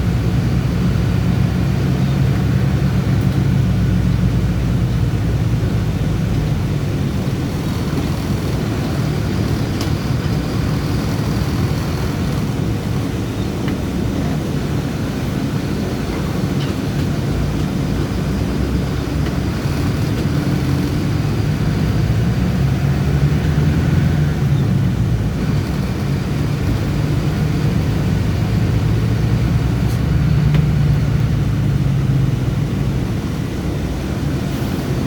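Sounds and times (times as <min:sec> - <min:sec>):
bus engine droning: 0:00.0 - 0:35.0.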